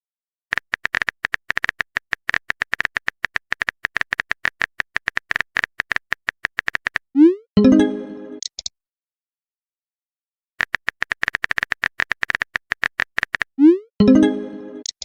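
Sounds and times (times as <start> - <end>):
phone keyboard typing clicks: 0.5 - 7.0, 10.6 - 13.6.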